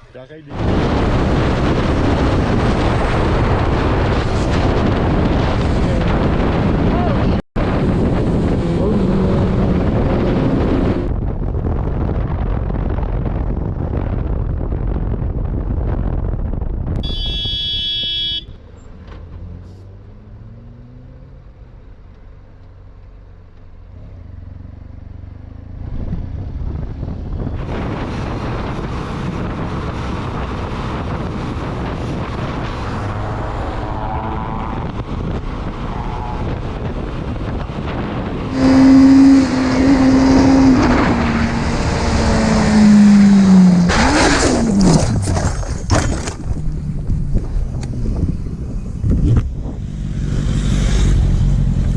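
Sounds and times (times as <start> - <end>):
road noise: 0.0 - 51.9
wind on microphone: 0.5 - 17.9, 25.8 - 51.9
vehicle horn honking: 17.0 - 18.6
motorcycle engine: 23.8 - 51.9.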